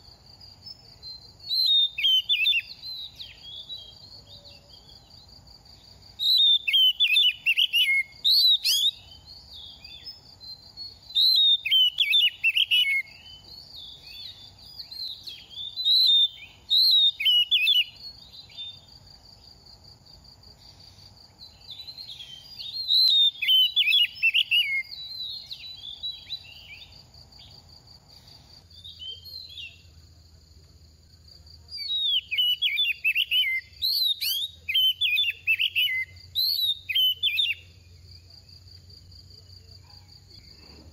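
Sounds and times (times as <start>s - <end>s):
bird singing whistled phrases: 1.0s - 5.0s, 6.2s - 18.8s, 21.4s - 26.9s, 28.8s - 29.8s, 31.8s - 37.7s.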